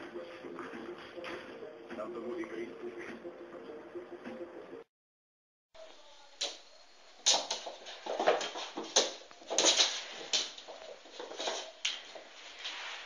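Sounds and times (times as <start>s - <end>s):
cat playing on wooden floor: 7.2s - 13.0s.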